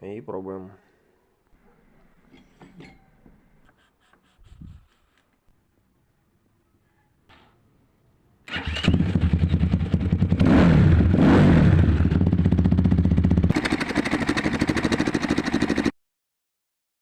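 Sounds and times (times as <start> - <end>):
motorcycle engine starting and revving: 8.5 - 15.9.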